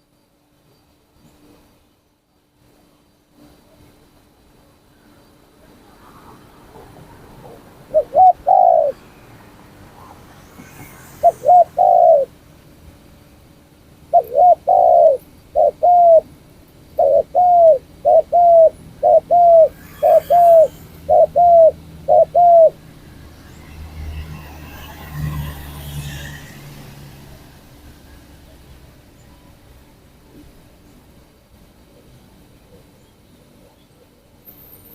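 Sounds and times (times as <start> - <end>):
dove cooing: 7.5 - 9.0, 10.7 - 12.3, 14.1 - 16.3, 17.0 - 22.8.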